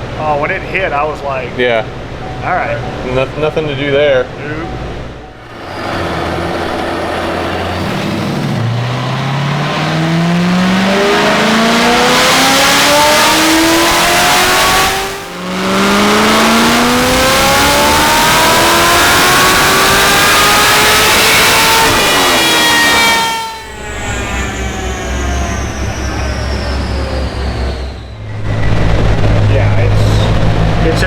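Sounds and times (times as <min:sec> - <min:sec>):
gear upshift: 0:05.4 - 0:29.5
car engine accelerating: 0:05.4 - 0:31.0.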